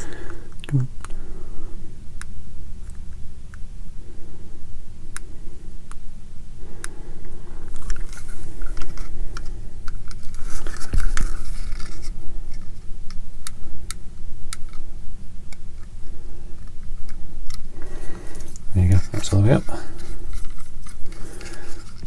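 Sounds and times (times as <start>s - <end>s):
plastic parts clicking and scraping: 7.7s - 14.9s, 16.6s - 22.0s.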